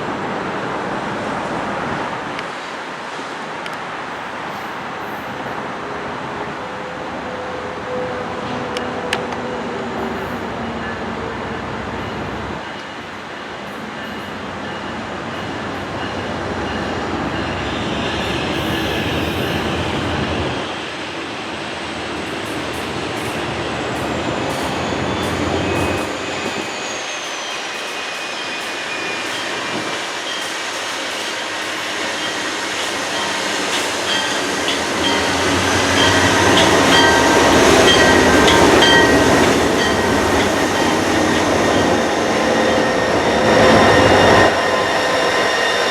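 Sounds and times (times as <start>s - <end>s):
train rumbling on rails: 0.0s - 45.9s
high-pitched wheel squeals: 32.2s - 45.9s.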